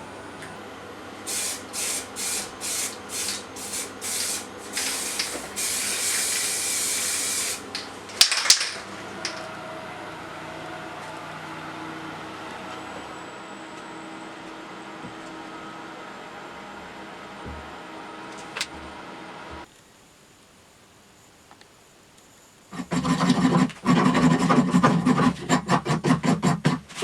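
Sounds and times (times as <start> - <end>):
gas hissing from a nozzle: 1.2 - 7.8.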